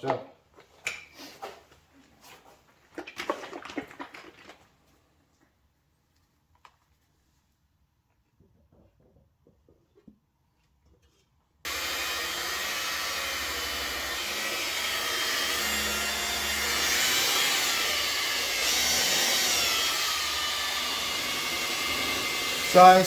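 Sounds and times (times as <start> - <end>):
buffer machine whirring: 11.7 - 23.0.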